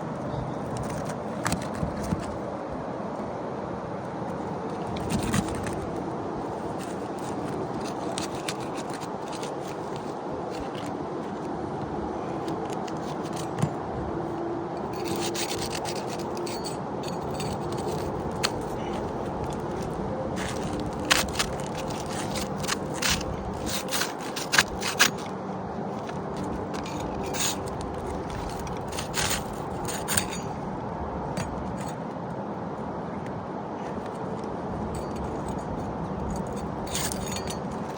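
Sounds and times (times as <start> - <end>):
steady background hum: 0.0 - 37.9
tool scraping shingles: 0.6 - 2.5, 4.4 - 11.5, 12.2 - 14.0, 14.8 - 32.1, 33.9 - 37.9.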